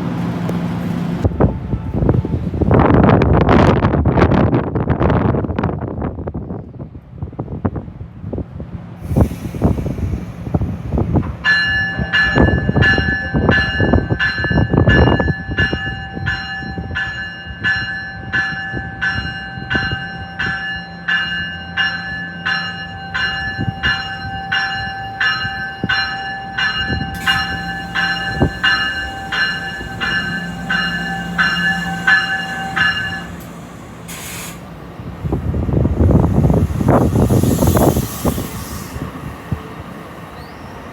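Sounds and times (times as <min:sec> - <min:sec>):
train rumbling: 0:00.0 - 0:40.9
train bell ringing: 0:10.9 - 0:34.2.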